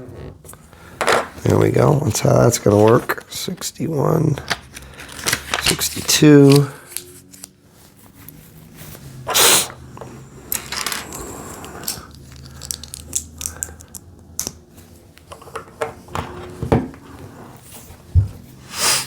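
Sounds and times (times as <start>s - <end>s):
short loud hissing burst: 9.3s - 9.7s
plastic bricks clicking and rattling: 11.8s - 14.0s.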